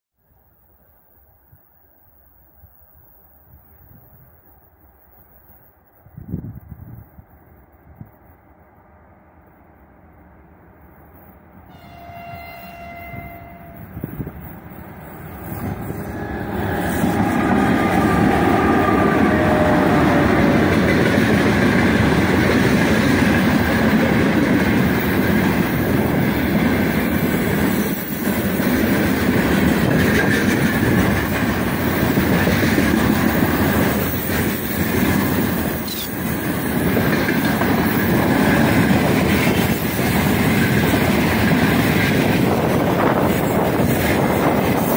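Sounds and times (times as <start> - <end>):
train rumble and wheel clatter: 1.6 - 44.9
locomotive horn: 11.7 - 14.5, 15.4 - 20.6.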